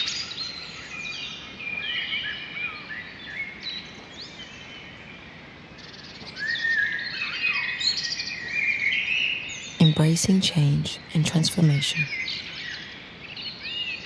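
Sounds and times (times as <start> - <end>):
soft background hiss: 9.8 - 12.1.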